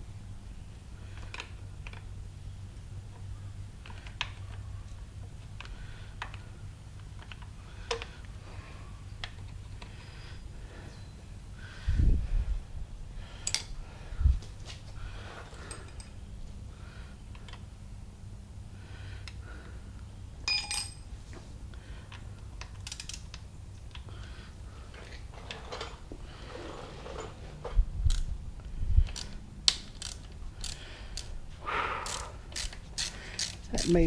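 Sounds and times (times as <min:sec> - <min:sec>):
steady low hum: 0:00.0 - 0:34.0
tools and metal parts clinking: 0:13.4 - 0:13.7, 0:15.4 - 0:16.2, 0:20.4 - 0:21.1, 0:25.0 - 0:26.0, 0:29.0 - 0:31.4, 0:32.1 - 0:34.0
ringing metallic clink: 0:20.5 - 0:21.1.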